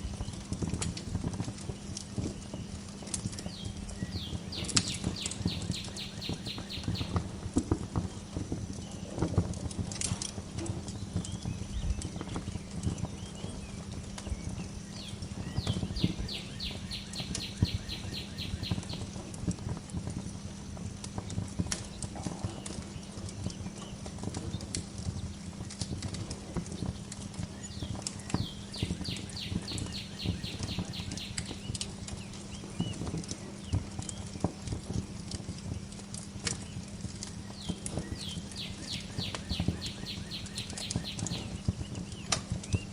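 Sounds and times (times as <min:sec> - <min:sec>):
wood fire crackling: 0:00.0 - 0:42.9
songbird trilling: 0:04.0 - 0:07.2, 0:15.0 - 0:19.0, 0:27.7 - 0:31.7, 0:37.5 - 0:41.6.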